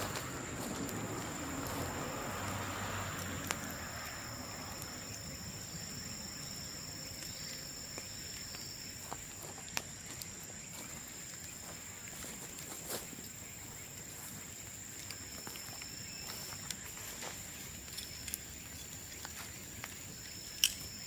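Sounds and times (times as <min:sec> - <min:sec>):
bamboo popping in bonfire: 0:00.0 - 0:21.0
insects trilling: 0:00.0 - 0:21.0.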